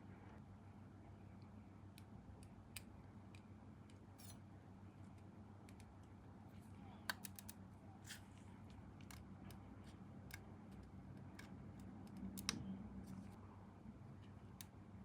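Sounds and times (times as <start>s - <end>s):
faint low hum: 0.0s - 15.0s
plastic parts clicking: 7.1s - 7.6s.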